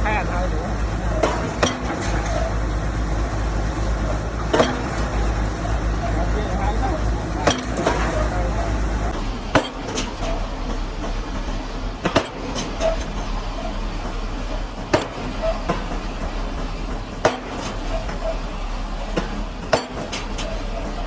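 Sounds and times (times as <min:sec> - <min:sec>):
pile-driving hammer blows: 0:00.0 - 0:21.0
rig engine running: 0:00.0 - 0:21.0
metallic clanks: 0:00.9 - 0:21.0.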